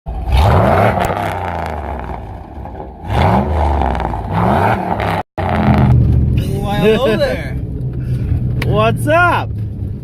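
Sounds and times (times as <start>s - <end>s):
truck engine revving: 0.1s - 6.4s.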